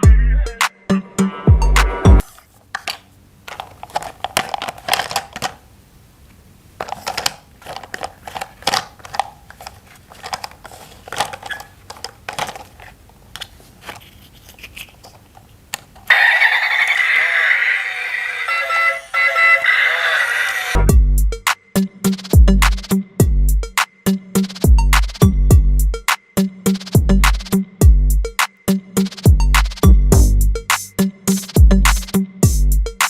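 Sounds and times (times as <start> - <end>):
music: 0.0 - 2.2, 18.5 - 33.0
plastic toy parts clicking: 2.3 - 5.6, 6.8 - 16.1.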